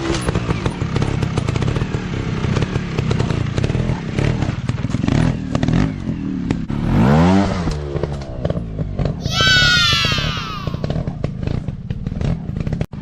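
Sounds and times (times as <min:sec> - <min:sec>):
dirt bike engine revving: 0:03.6 - 0:12.8.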